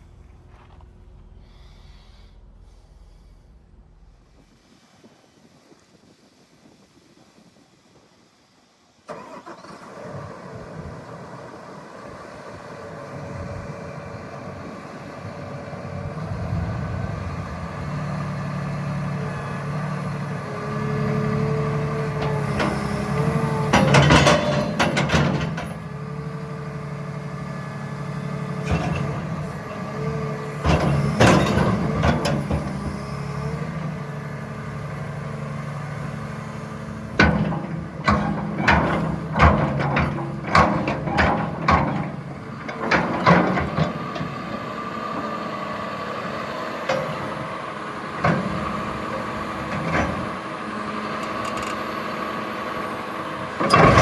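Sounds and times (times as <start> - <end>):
excavator diesel engine drone: 0.0 - 4.6, 9.2 - 54.0
sharp metal clanks and knocks: 23.7 - 25.8.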